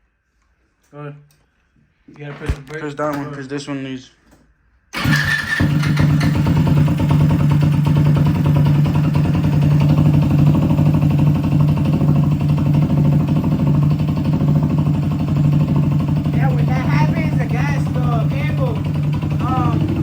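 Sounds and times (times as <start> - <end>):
moped engine idling: 5.0 - 20.0.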